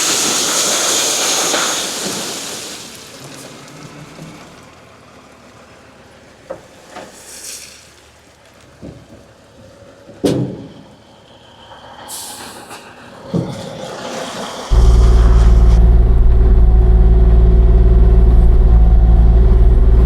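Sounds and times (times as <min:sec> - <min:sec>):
hydraulic hiss: 0:00.0 - 0:03.2, 0:10.7 - 0:15.8
excavator engine running: 0:14.4 - 0:20.0.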